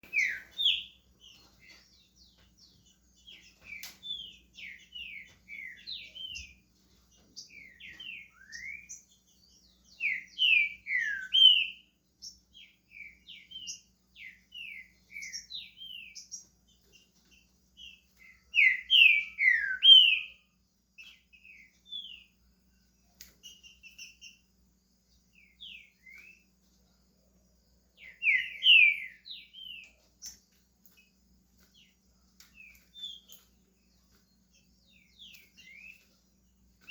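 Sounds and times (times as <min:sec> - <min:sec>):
bird singing whistled phrases: 0:00.0 - 0:01.0, 0:07.6 - 0:09.0, 0:09.9 - 0:11.8, 0:18.2 - 0:20.4, 0:28.0 - 0:29.9.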